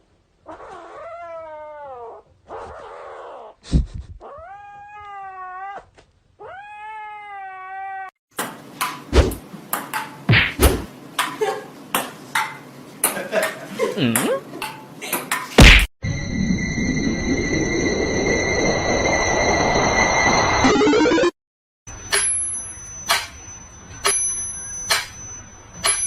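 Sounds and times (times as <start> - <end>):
cat meowing: 4.2 - 8.1.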